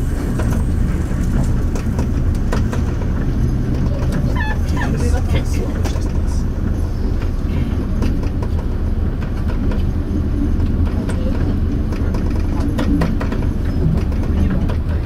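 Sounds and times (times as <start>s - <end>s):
train low rumble: 0.0s - 15.0s
clicks and rattles: 10.6s - 15.0s.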